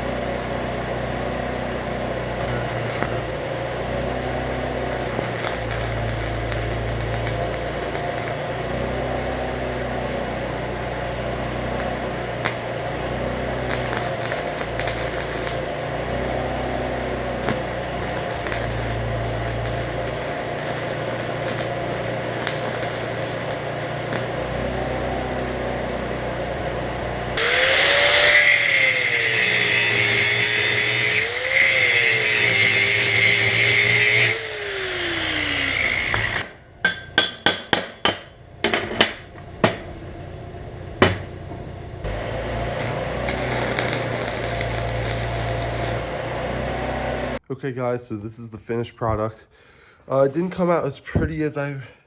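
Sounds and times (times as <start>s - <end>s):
angle grinder grinding steel: 4.2s - 10.4s, 11.5s - 26.0s, 27.4s - 38.3s, 42.0s - 47.4s
steady low hum: 34.4s - 47.4s.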